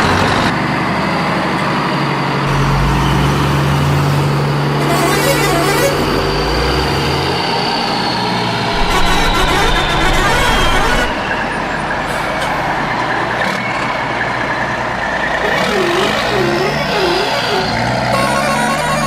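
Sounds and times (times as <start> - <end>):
heavy vehicle engines running: 0.0 - 19.0
faint high whine: 8.7 - 11.6.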